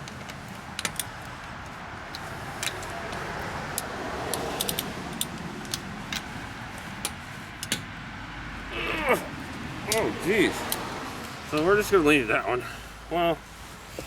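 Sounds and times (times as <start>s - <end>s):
steady background noise: 0.0s - 14.0s
metallic wrench clicks: 3.8s - 6.3s.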